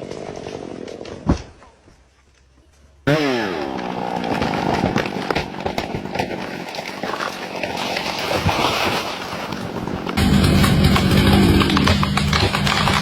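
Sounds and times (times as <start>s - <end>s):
tree crashing through branches: 3.2s - 13.0s.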